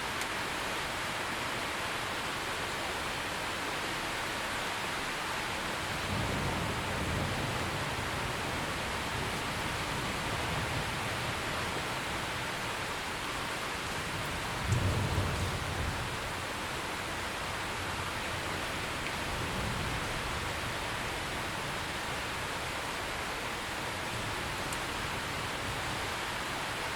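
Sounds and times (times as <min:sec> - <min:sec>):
heavy rain: 0:00.0 - 0:26.9
low rumble of thunder: 0:06.0 - 0:12.2, 0:14.0 - 0:16.4, 0:19.2 - 0:21.8.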